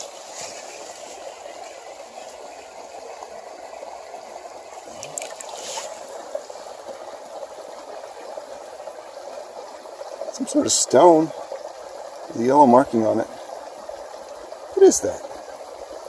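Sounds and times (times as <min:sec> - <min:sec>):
creek water running: 0:00.0 - 0:16.0.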